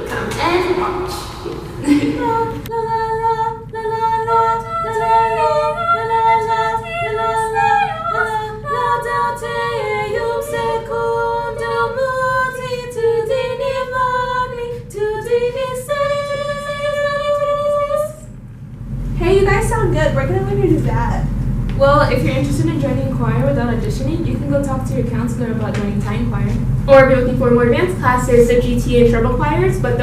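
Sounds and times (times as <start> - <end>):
group singing in harmony: 0.0 - 18.2.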